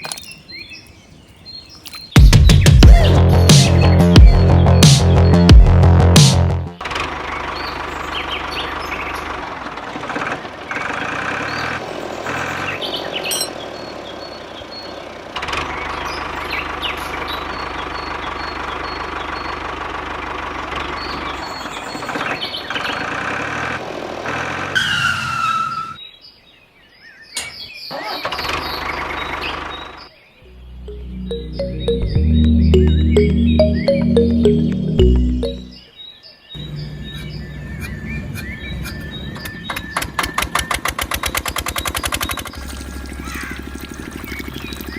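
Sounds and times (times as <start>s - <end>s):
birds chirping: 0.0s - 5.5s, 7.1s - 23.2s, 26.0s - 44.9s
small engine running: 6.8s - 24.8s, 40.3s - 44.9s.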